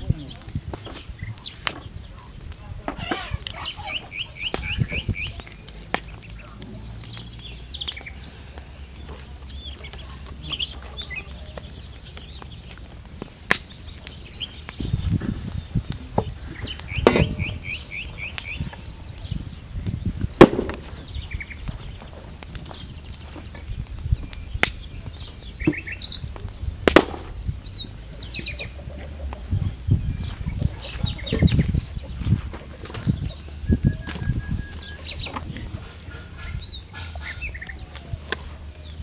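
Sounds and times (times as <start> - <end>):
songbirds chirping: 0.0 - 39.0
sharp knocks: 17.0 - 17.5.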